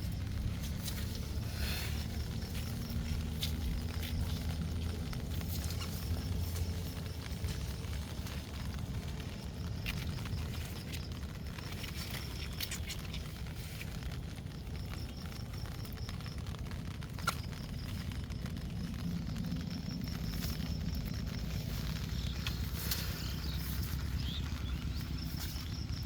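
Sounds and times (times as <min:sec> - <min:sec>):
low rumble: 0:00.0 - 0:26.0
faint high pulsing chirp: 0:17.4 - 0:26.0.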